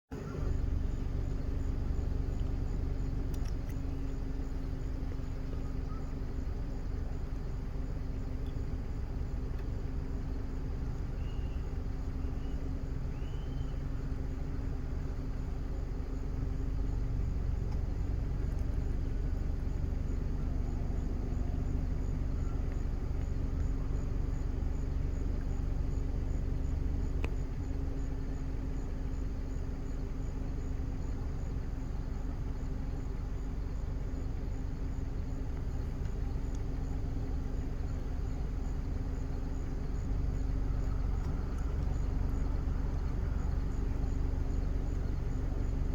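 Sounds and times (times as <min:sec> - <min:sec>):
vehicle rumble with hum: 0:00.1 - 0:45.9.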